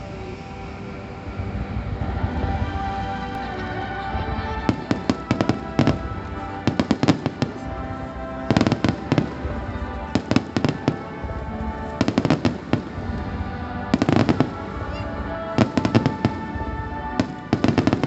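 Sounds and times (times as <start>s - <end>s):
music with held tones: 0.0s - 18.0s
fireworks crackling bangs: 4.6s - 18.0s.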